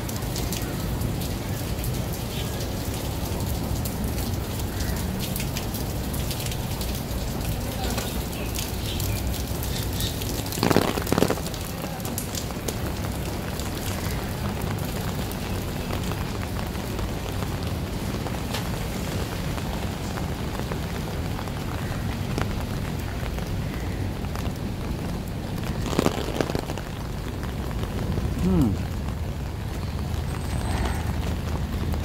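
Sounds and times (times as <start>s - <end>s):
rain on wet pavement: 0.0s - 32.0s.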